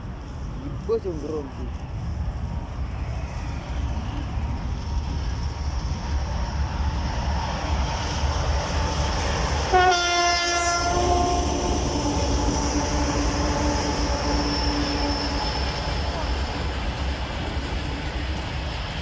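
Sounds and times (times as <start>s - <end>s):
diesel locomotive engine rumble: 0.0s - 19.0s
locomotive horn blast: 9.7s - 11.8s.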